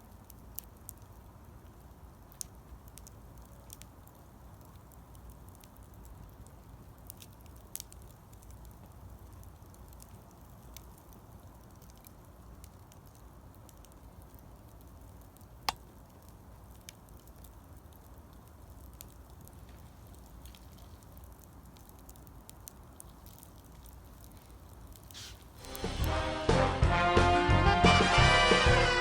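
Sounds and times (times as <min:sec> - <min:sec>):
wood fire crackling: 0:00.0 - 0:29.0
sharp pop from fire: 0:24.9 - 0:26.5.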